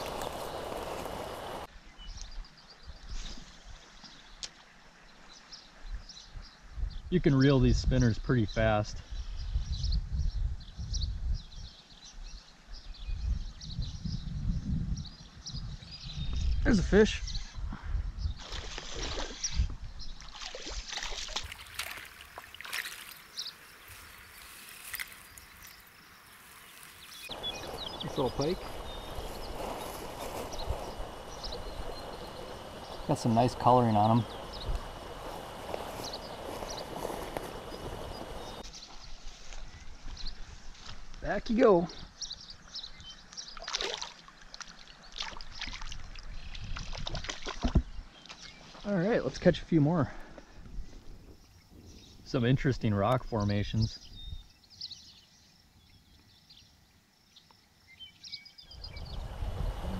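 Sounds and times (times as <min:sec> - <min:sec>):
water splashing: 0:00.0 - 0:01.7, 0:20.2 - 0:38.6, 0:43.6 - 0:48.4
fish splashing at water surface: 0:20.2 - 0:23.3, 0:43.6 - 0:46.0.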